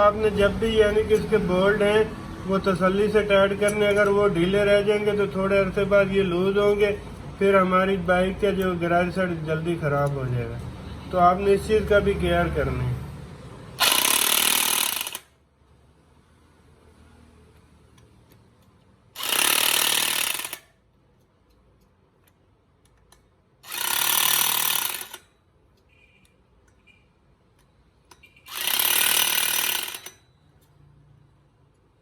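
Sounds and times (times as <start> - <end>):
impact wrench: 13.8 - 15.4, 19.2 - 20.8, 23.6 - 25.4, 28.1 - 30.4.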